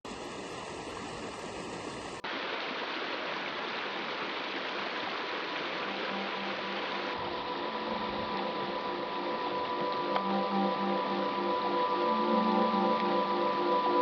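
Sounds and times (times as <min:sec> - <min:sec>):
stream water running: 0:00.1 - 0:14.0.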